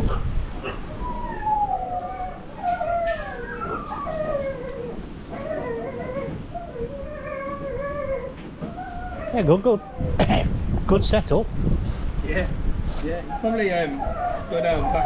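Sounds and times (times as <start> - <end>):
huskies howling in chorus: 0.7 - 10.2, 13.3 - 15.0.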